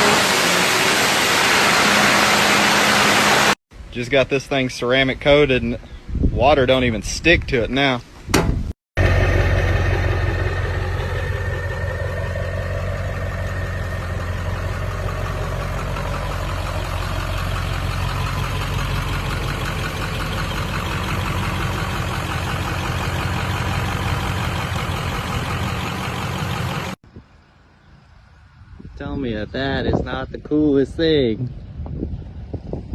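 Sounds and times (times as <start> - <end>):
truck engine rumbling: 0.0 - 4.0, 8.0 - 27.5.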